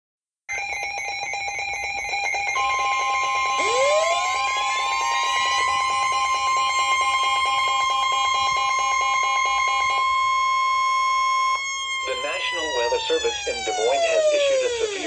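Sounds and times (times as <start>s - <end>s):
steady high alarm tone: 0.5s - 15.0s
pulsing electronic alert tone: 3.5s - 5.5s.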